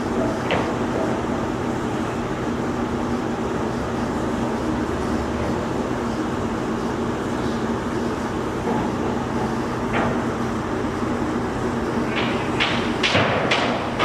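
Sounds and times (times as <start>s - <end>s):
machinery rumbling and humming: 0.0s - 14.0s.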